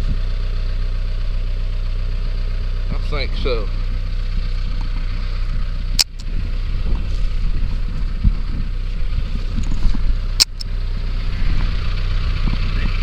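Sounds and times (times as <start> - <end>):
vehicle engine idling: 0.0 - 13.0
sharp clicks: 6.0 - 6.3, 10.4 - 10.7.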